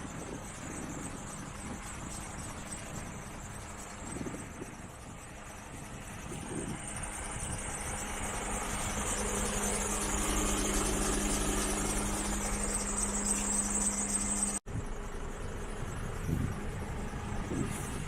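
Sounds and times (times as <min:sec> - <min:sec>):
truck diesel engine idling: 0:00.0 - 0:18.0.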